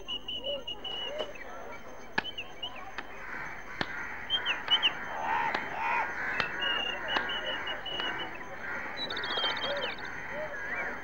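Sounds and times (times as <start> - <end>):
birds chirping: 0.0 - 11.0
sharp clicks: 6.3 - 7.4.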